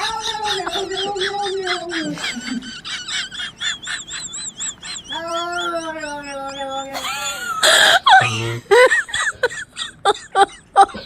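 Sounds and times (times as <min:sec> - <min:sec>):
high warbling animal call: 0:03.0 - 0:07.9.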